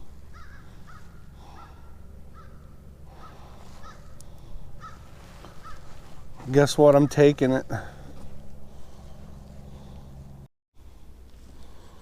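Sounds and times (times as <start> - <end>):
low steady hum: 0.0 - 12.0
crows cawing: 0.3 - 6.2.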